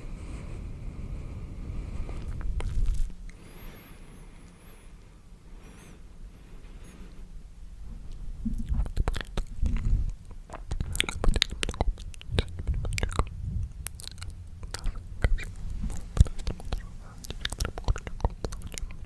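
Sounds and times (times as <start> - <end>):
low rumble: 0.0 - 19.0
wet mouth clicks and smacks: 2.3 - 3.4, 8.1 - 19.0.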